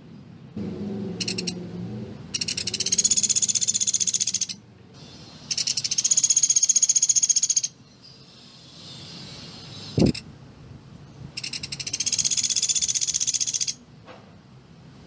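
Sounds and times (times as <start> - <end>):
woodpecker rattling trills: 1.2 - 1.6, 2.3 - 4.6, 5.5 - 7.8, 11.4 - 13.8.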